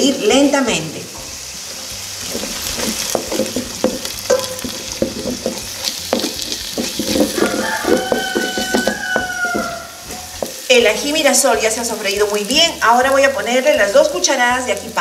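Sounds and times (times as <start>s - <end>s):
paste sizzling in oil: 0.0s - 15.0s
wooden spoon scraping a pot: 2.2s - 10.7s.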